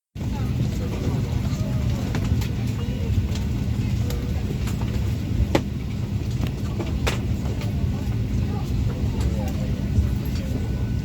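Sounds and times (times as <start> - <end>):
air-conditioning hum: 0.2 - 11.0
faint background chatter: 0.2 - 11.0.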